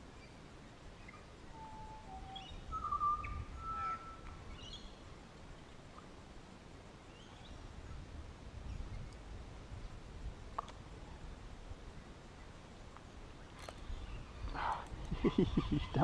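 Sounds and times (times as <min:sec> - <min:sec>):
birds whistling and chirping: 0:01.0 - 0:05.0, 0:15.2 - 0:16.0.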